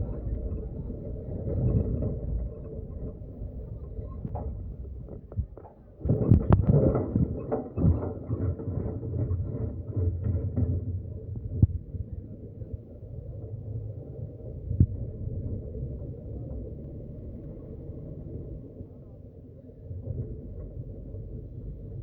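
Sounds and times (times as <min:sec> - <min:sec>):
knocks and rattles: 0:00.0 - 0:11.7
vehicle rumbling on road: 0:00.0 - 0:22.0.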